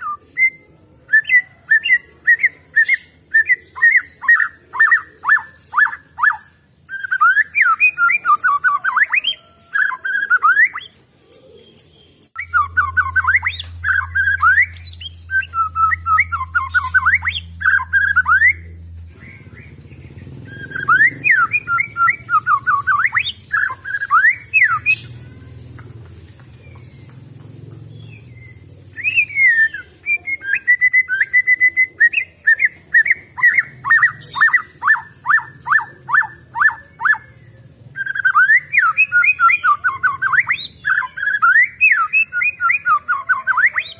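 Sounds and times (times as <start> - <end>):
bird singing whistled notes: 0.0 - 25.2, 28.0 - 37.4, 38.0 - 43.9
steady low hum: 12.3 - 23.8.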